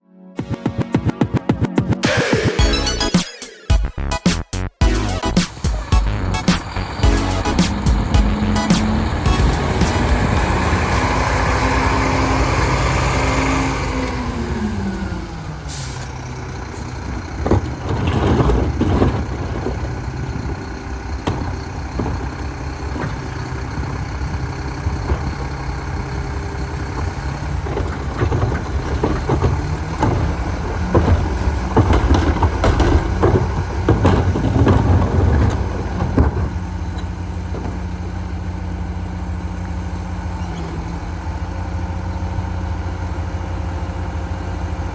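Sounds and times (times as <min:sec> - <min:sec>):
diesel truck engine: 0:02.0 - 0:44.9
metallic clanks and bangs: 0:05.2 - 0:11.7, 0:16.1 - 0:38.6.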